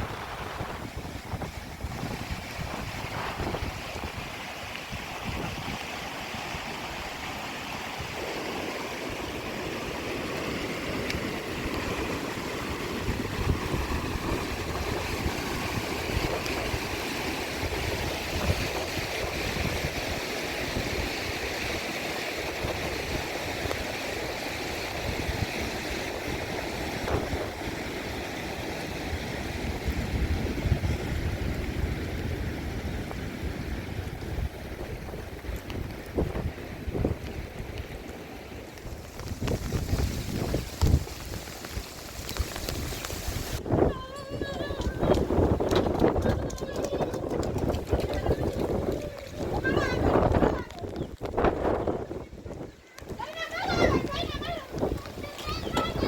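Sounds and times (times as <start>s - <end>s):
water rushing: 0.0s - 56.0s
wind buffeting microphone: 0.0s - 56.0s.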